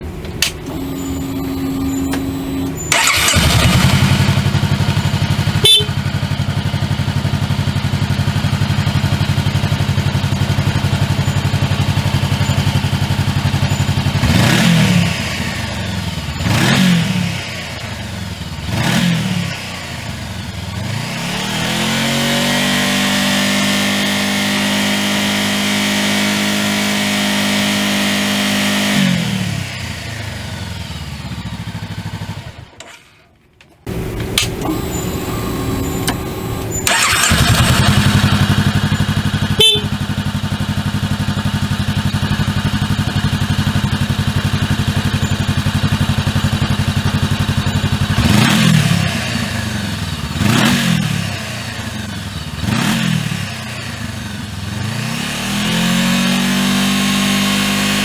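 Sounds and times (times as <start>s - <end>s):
electric starter cranking: 0.0s - 5.8s, 32.5s - 39.8s
motorcycle engine idling and revving: 0.0s - 58.0s.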